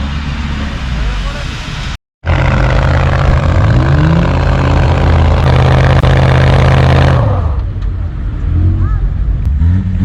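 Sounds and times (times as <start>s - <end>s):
off-road engine revving hard: 2.2s - 7.6s, 9.4s - 10.0s.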